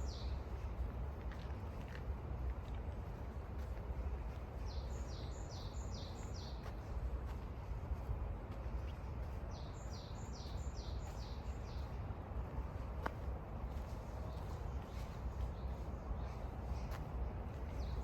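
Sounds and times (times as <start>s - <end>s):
songbird singing: 0.0s - 1.0s, 4.0s - 7.7s, 8.7s - 12.7s, 13.6s - 18.0s
steady low rumble: 0.0s - 18.0s.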